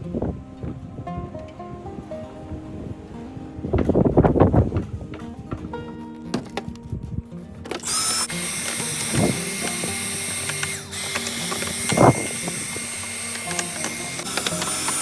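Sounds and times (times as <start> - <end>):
vacuum cleaner running: 7.7 - 15.0.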